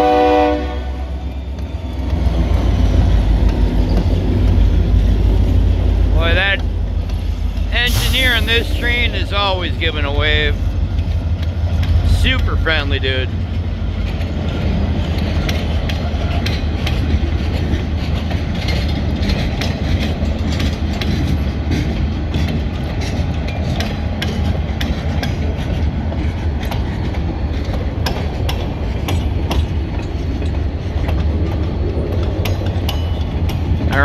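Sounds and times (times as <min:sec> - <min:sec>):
freight train rumble: 0:00.0 - 0:34.0
wheels clicking over rail joints: 0:01.2 - 0:34.0.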